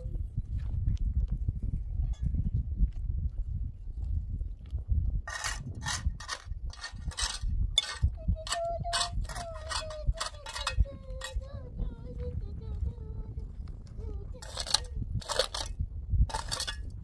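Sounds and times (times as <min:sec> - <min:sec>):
rasping scraping strokes: 0:05.3 - 0:11.4, 0:14.4 - 0:16.9.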